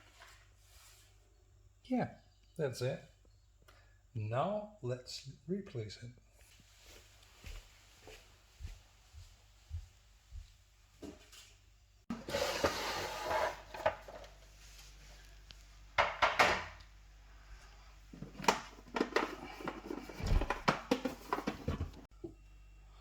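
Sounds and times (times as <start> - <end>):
knocks and scrapes from handling: 18.2 - 22.1.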